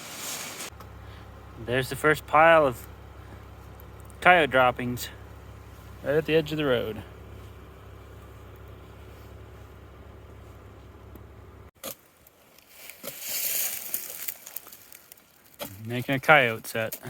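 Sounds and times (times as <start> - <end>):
scraping in dirt: 0.0 - 1.4, 2.6 - 17.0
steady low rumble: 0.0 - 11.7.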